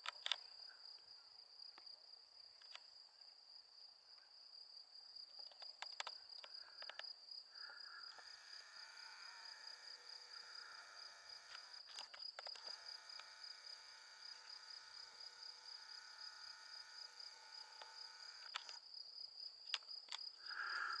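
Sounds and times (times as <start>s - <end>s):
crickets chirping: 0.0s - 21.0s
faint clicks: 5.3s - 7.2s, 17.6s - 18.8s
insects singing: 5.4s - 19.0s, 19.7s - 21.0s.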